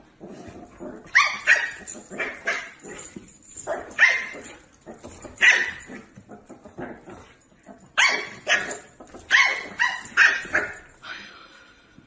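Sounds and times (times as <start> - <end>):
dog yapping: 1.1 - 3.0, 3.7 - 4.6, 5.3 - 6.1, 8.0 - 10.9.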